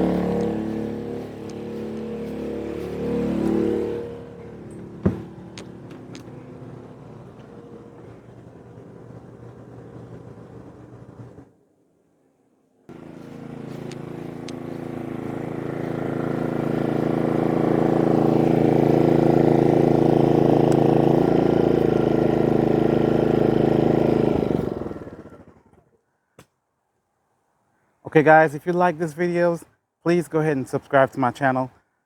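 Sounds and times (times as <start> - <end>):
generator engine running: 0.0 - 11.5, 12.9 - 25.9.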